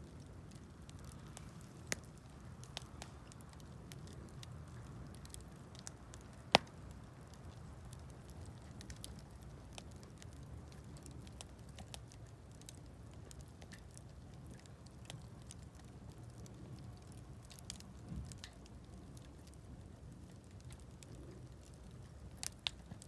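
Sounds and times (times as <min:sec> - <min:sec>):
campfire crackling: 0:00.0 - 0:23.0
fire pops and snaps: 0:00.0 - 0:23.0.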